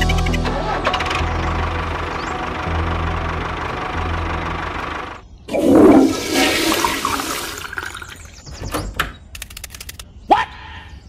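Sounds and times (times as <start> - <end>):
engine hum: 0.0 - 8.0
toilet flushing: 5.5 - 8.4
faint clicks and squeaks: 8.4 - 10.1.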